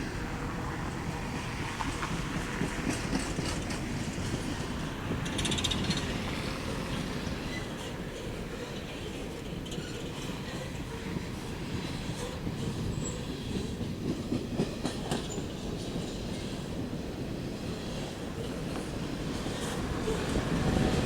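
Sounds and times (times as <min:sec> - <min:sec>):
train cars rumbling on rails: 0:00.0 - 0:21.0
high wheel squeals: 0:07.4 - 0:10.8.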